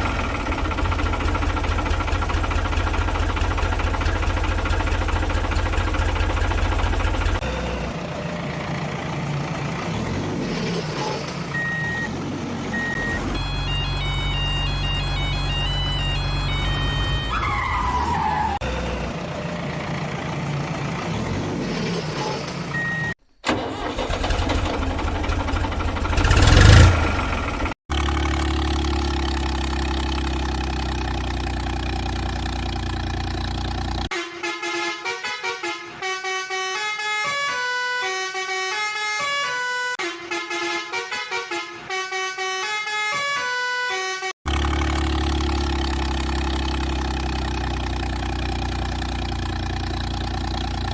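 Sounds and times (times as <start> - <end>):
steady engine hum: 0.0 - 34.2, 44.5 - 50.9
simple electronic tune: 12.7 - 17.5
horn-like sounds: 12.7 - 18.8, 34.1 - 44.3.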